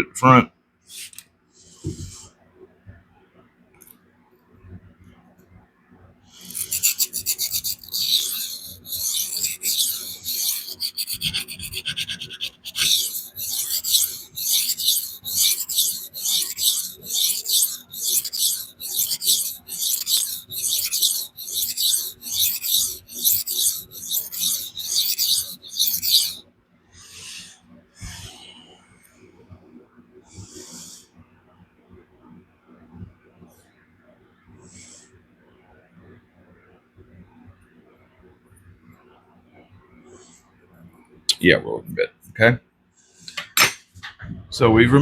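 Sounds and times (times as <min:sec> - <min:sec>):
blade scraping on sharpening stone: 0:06.4 - 0:26.4.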